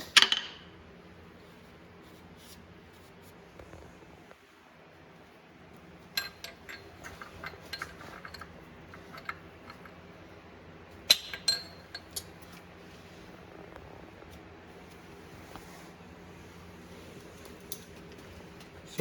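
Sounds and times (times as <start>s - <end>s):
metal parts clinking: 6.1s - 10.1s, 11.0s - 12.6s.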